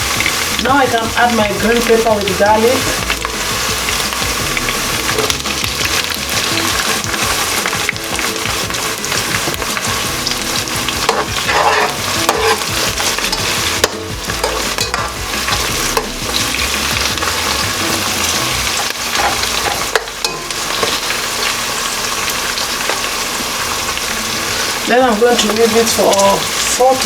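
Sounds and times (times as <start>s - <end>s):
spoon stirring in pan: 0.0s - 26.7s
vegetables sizzling in oil: 0.0s - 27.0s
spoon clicking against pan: 11.1s - 16.1s.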